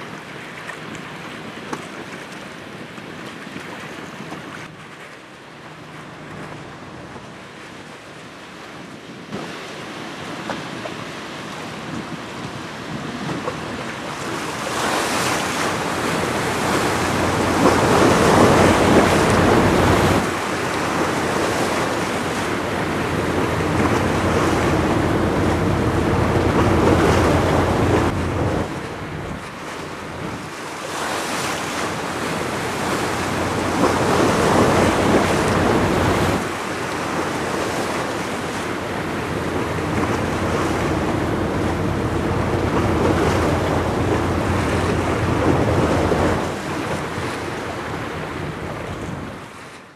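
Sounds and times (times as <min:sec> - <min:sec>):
rush of the sea: 0:00.0 - 0:49.9
wind buffeting microphone: 0:08.7 - 0:49.8.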